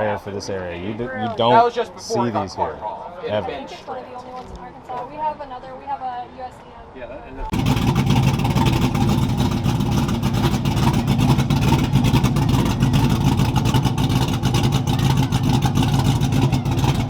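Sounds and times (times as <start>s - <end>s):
car engine droning: 7.5s - 17.0s.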